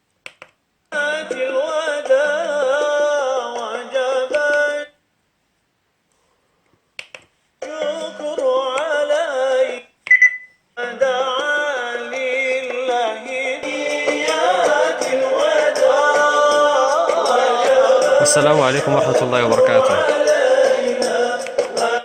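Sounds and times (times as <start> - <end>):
song with singing on speaker: 0.9 - 5.0, 7.6 - 22.0
short beep: 10.1 - 10.6.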